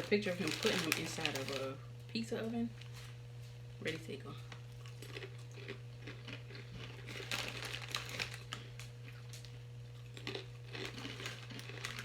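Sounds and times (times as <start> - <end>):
low electrical hum: 0.0 - 12.0
chips crunching when chewed: 4.5 - 12.0.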